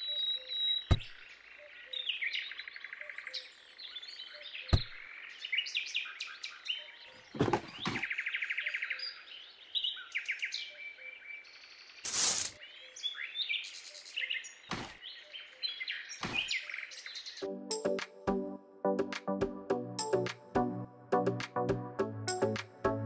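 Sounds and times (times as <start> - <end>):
small birds chirping: 0.0 - 17.5
short rush of noise: 12.1 - 12.6.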